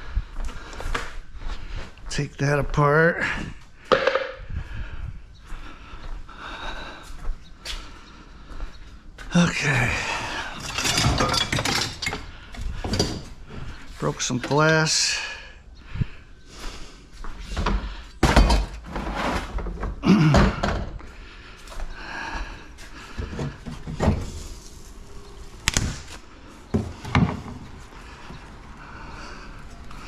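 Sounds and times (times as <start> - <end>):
metal clattering: 10.3 - 13.4
clunks and knocks of scrap: 10.4 - 13.8, 17.4 - 21.0, 23.1 - 24.9, 25.6 - 28.4.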